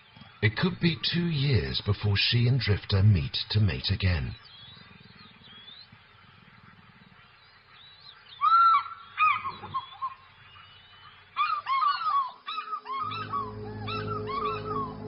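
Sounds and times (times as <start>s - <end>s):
faint bird chirping: 0.0s - 15.0s
loud bird calls: 3.6s - 15.0s.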